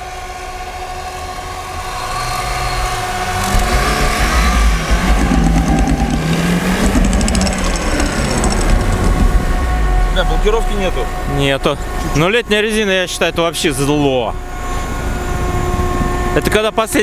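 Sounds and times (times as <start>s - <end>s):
car engine revving hard: 0.2s - 11.9s.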